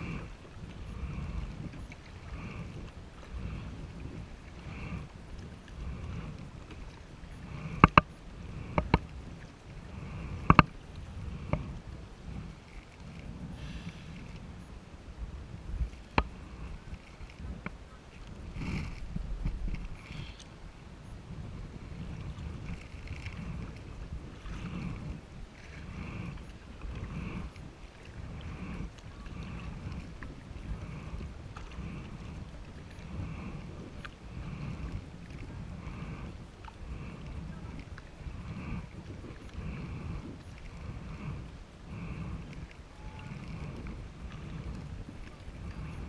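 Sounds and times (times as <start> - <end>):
water swishes: 0.0 - 46.0
wind rumble on microphone: 0.0 - 46.0
paddle knocking kayak hull: 7.7 - 9.0.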